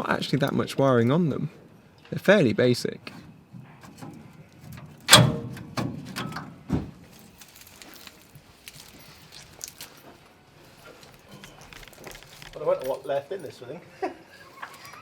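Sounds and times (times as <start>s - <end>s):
wiring loom clicks and rattles: 3.9s - 6.5s
workshop knocks: 5.1s - 7.0s.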